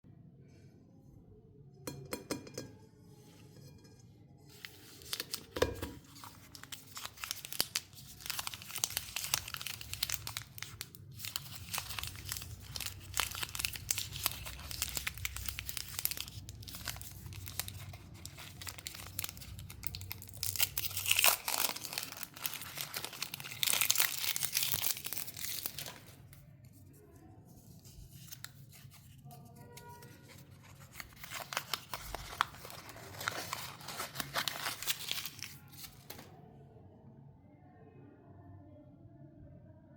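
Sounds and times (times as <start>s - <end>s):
wrappers crinkling and tearing: 4.6s - 26.4s, 27.7s - 36.3s.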